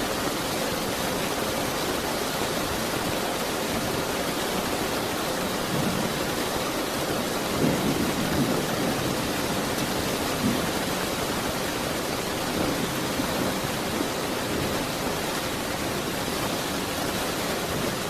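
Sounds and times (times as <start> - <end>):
heavy rain hissing: 0.0 - 18.0
distant thunder rumbling: 5.6 - 18.0.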